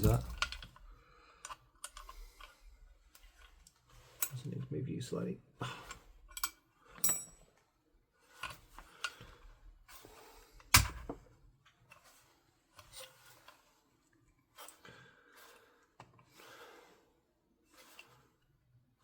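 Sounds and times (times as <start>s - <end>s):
metal parts clicking and scraping: 0.0s - 0.8s, 5.8s - 7.4s
small metal clink: 6.3s - 7.4s.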